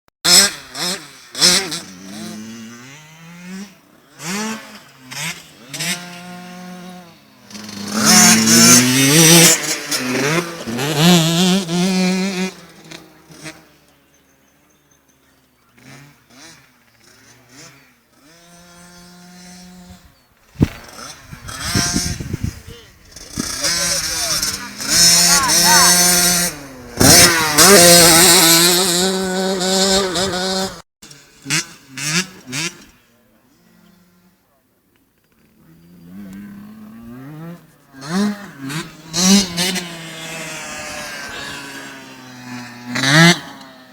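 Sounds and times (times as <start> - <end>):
motocross bike engine revving: 0.3 - 34.5, 35.3 - 43.9.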